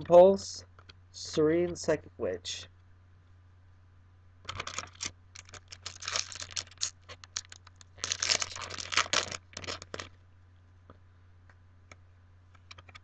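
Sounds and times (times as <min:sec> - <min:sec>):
foil wrapper tearing and crinkling: 0:04.5 - 0:10.2.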